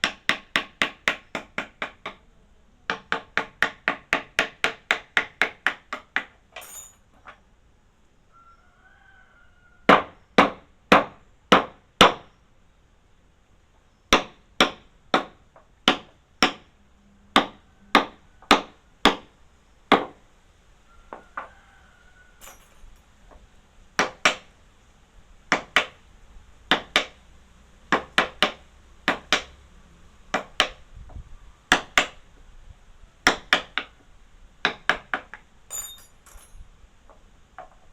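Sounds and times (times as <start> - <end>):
hammer striking wood: 0.0 - 2.2, 2.9 - 6.4, 9.9 - 12.2, 14.1 - 16.7, 17.4 - 19.3, 19.9 - 20.2, 24.0 - 24.5, 25.5 - 26.0, 26.7 - 27.2, 27.9 - 29.6, 30.3 - 30.8, 33.2 - 33.9, 34.6 - 36.1.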